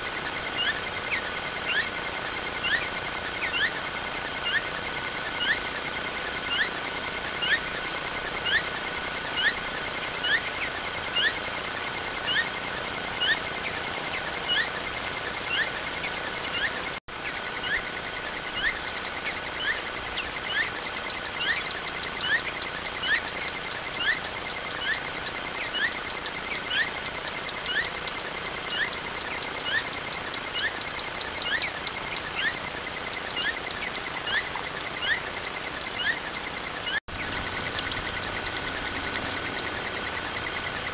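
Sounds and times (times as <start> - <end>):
high ticking bird notes: 0.4 - 40.9
bird rising chirps: 28.6 - 40.9.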